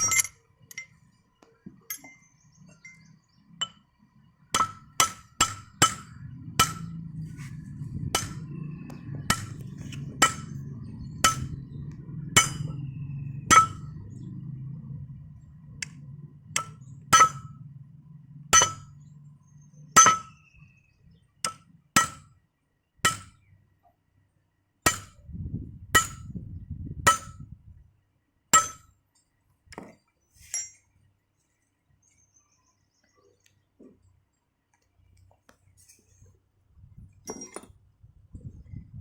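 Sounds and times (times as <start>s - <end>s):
hammer striking metal: 4.6s - 7.0s, 8.1s - 14.0s, 16.5s - 17.6s, 18.5s - 19.0s, 20.0s - 20.4s, 21.4s - 22.3s, 23.1s - 23.4s, 24.9s - 25.2s, 26.0s - 26.3s, 27.1s - 27.4s, 28.6s - 28.9s.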